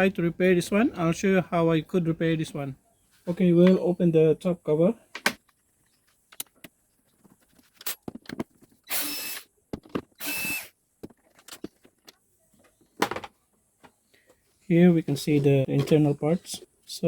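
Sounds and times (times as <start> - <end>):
electric screwdriver running: 8.9 - 9.5, 10.2 - 10.7.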